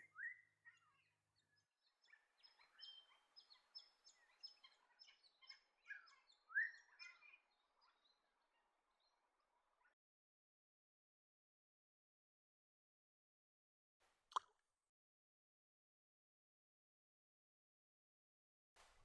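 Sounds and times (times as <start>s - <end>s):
faint wild birds chirping: 0.0s - 10.0s.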